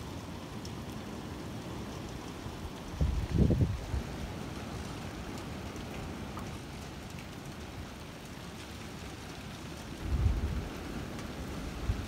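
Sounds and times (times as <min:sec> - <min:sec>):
steady rain falling: 0:00.0 - 0:12.0
wind gusting against microphone: 0:02.8 - 0:04.3, 0:10.0 - 0:12.0.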